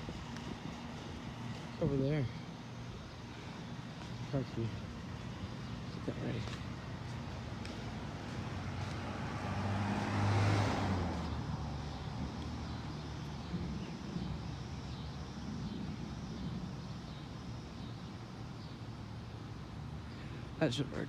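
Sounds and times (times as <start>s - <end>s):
car driving past: 7.9s - 14.3s.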